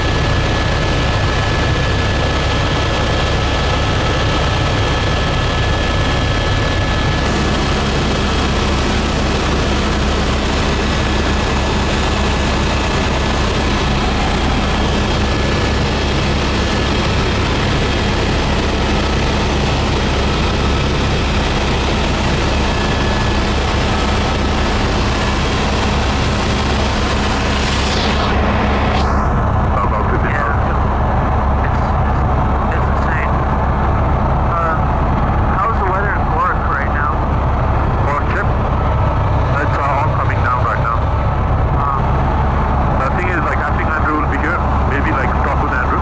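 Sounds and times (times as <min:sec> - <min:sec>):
helicopter engine and rotor drone: 0:00.0 - 0:46.0
steady whine: 0:00.0 - 0:46.0.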